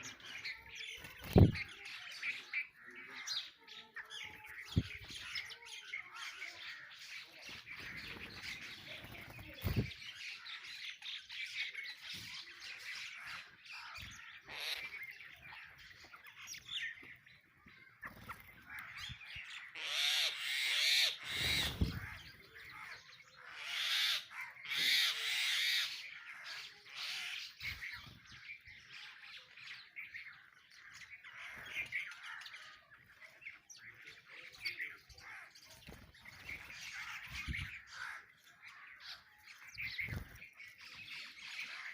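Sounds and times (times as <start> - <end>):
harsh bird calls: 0.0 - 41.9
sparrows chirping: 0.0 - 41.9.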